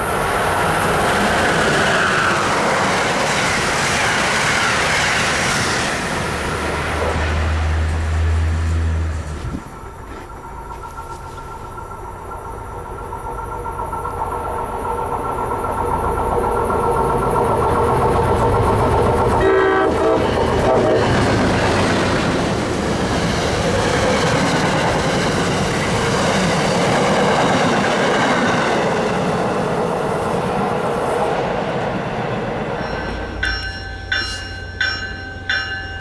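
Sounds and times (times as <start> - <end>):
passenger train passing: 0.0 - 36.0
train horn blast: 19.4 - 21.4.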